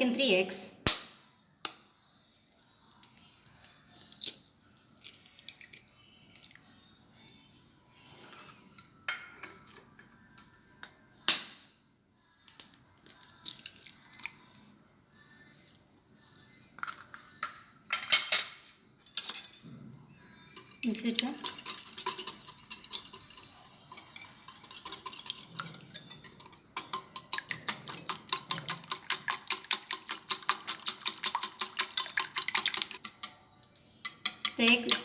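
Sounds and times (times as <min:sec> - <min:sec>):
eggs cracked on bowl rim: 0:12.5 - 0:14.3, 0:26.8 - 0:33.2
utensil beating eggs in bowl: 0:21.4 - 0:33.3, 0:34.0 - 0:35.0.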